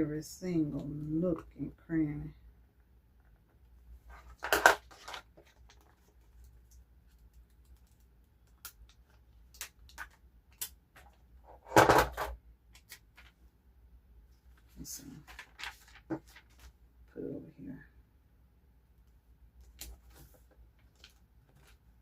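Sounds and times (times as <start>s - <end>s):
sticker sheets crinkling: 4.1s - 11.2s, 14.6s - 16.7s.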